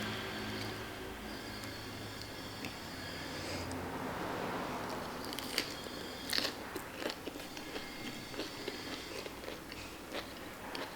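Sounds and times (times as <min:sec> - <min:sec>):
person chewing crunchy food: 0:05.1 - 0:10.9.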